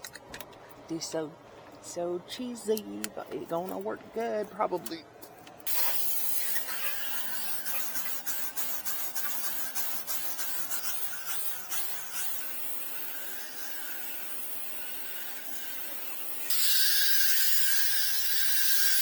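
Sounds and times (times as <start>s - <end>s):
steady hiss: 5.6s - 19.0s.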